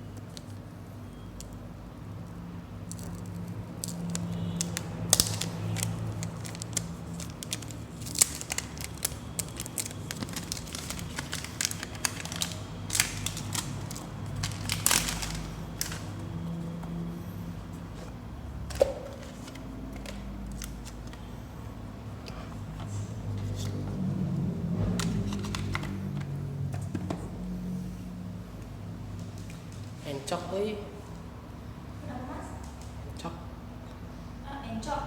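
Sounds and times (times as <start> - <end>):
plastic packaging crinkling and tearing: 2.8 - 16.6, 18.7 - 21.3, 25.0 - 26.2.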